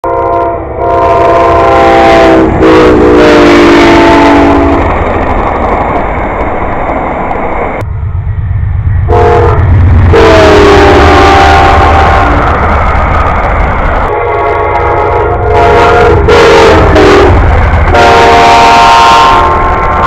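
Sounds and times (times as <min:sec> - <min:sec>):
locomotive air horn blasts: 0:00.0 - 0:04.8, 0:09.1 - 0:12.6, 0:14.1 - 0:20.0
rushing train rumble: 0:00.0 - 0:20.0.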